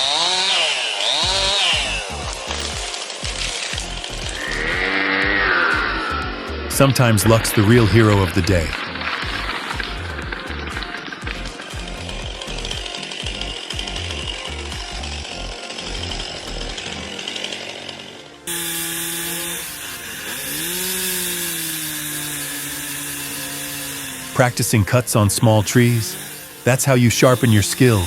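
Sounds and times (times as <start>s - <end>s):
chainsaw running: 0.0s - 28.0s
background music with steady beat: 1.2s - 17.5s.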